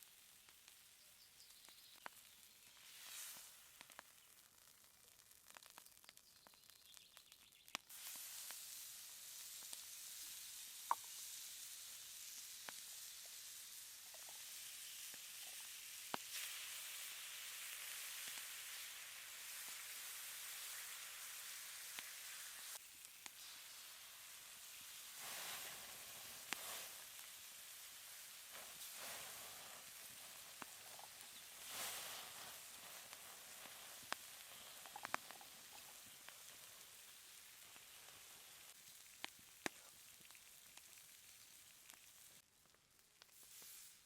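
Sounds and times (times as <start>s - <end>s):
steak sizzling on hot stone: 0.0s - 44.0s
sharp pops: 1.6s - 8.8s, 10.7s - 11.4s, 25.2s - 27.4s, 28.1s - 36.5s.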